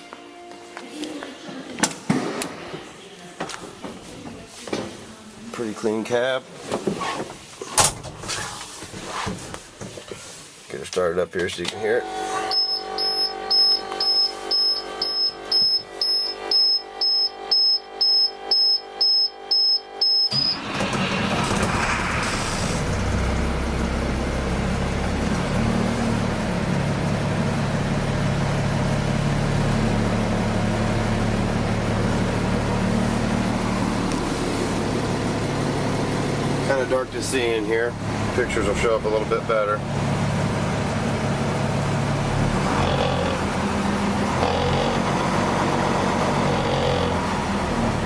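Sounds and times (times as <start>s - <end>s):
diesel engine starting and idling: 11.8s - 48.0s
high warning beeps: 12.0s - 20.7s.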